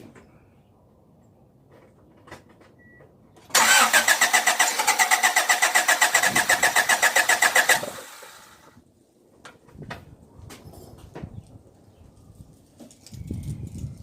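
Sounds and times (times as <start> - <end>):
engine cranked by starter: 3.5 - 8.7.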